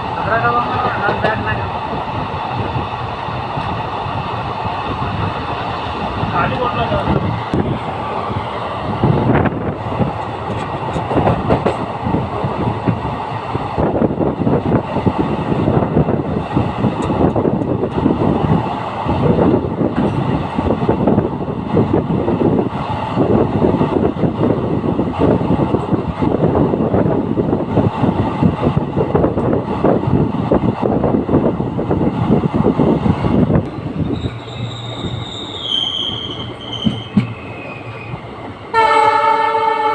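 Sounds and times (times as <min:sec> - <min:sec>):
train wheels clattering over rails: 0:00.5 - 0:06.3, 0:06.9 - 0:15.9, 0:16.5 - 0:21.2, 0:33.1 - 0:38.5
knocks from the track: 0:10.5 - 0:11.9, 0:36.7 - 0:37.4.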